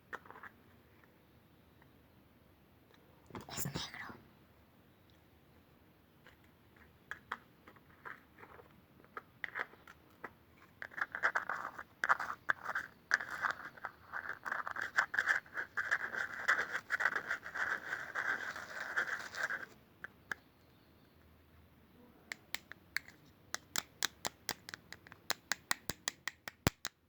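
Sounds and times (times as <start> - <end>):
fast scratching: 10.8 - 19.8
clicks and taps on object: 22.3 - 27.0.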